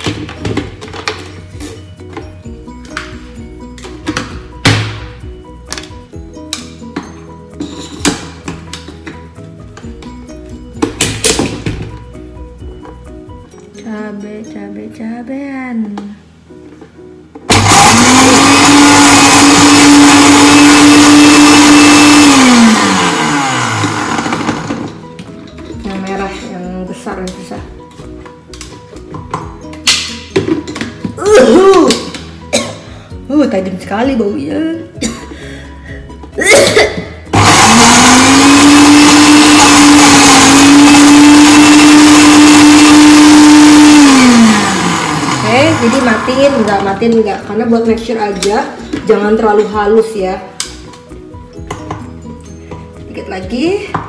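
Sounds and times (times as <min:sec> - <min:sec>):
blender running: 0:17.5 - 0:25.0, 0:37.3 - 0:46.9.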